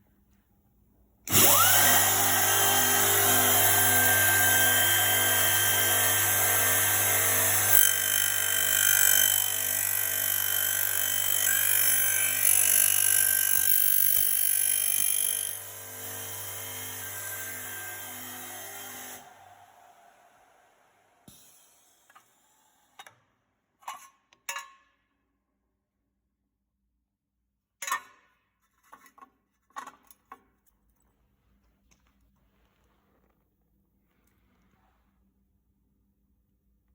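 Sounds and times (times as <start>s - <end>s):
milling machine motor whining: 1.3s - 21.3s.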